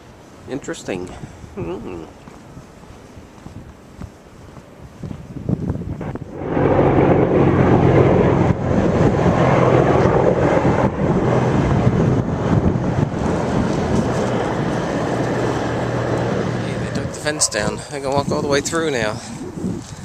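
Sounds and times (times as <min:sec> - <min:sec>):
large engine droning: 0:06.3 - 0:18.1.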